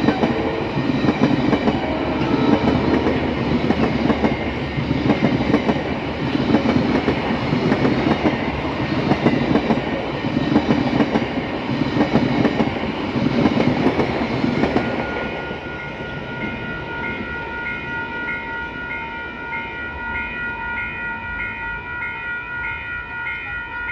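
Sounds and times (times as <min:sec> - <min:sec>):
level crossing warning bells: 0:00.0 - 0:11.6, 0:13.8 - 0:23.9
train wheels clattering on rails: 0:00.0 - 0:18.4.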